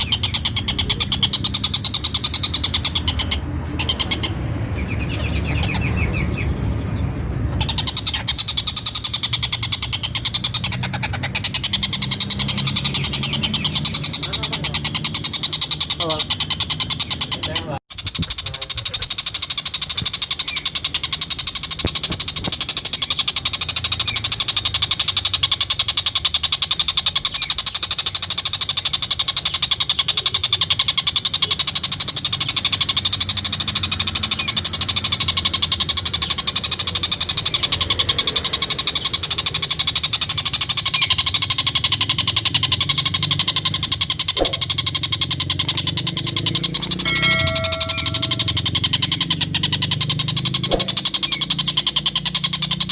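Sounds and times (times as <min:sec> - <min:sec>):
kingfisher rapid cackling call: 0:32.4 - 0:52.9
brief steady tone: 0:46.8 - 0:48.8.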